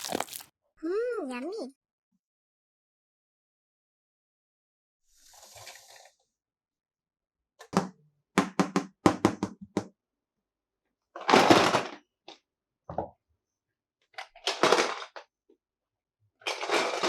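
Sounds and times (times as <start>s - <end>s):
plastic crinkle: 0.0s - 0.5s.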